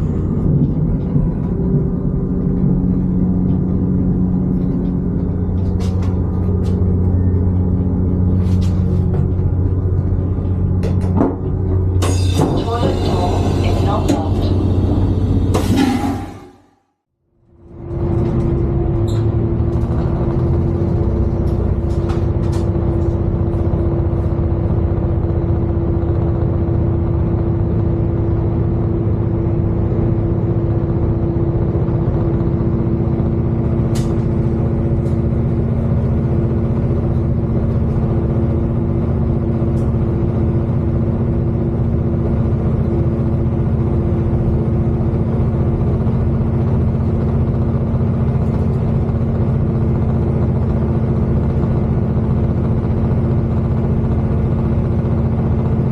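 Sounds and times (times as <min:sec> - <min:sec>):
train rumble: 0:00.0 - 0:16.8, 0:17.4 - 0:55.9
two-tone hum: 0:00.0 - 0:16.8.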